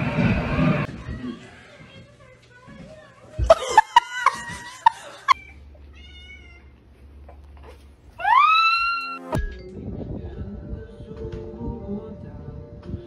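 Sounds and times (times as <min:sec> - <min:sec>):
cat meowing: 0:05.4 - 0:06.7.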